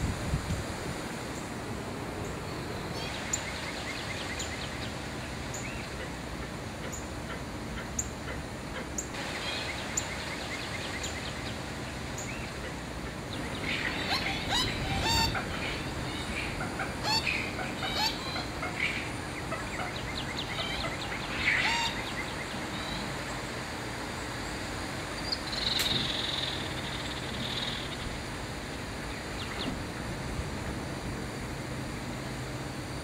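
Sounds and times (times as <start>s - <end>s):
steady background hiss: 0.0s - 33.0s
birds chirping and trilling: 2.2s - 24.3s, 25.1s - 29.8s.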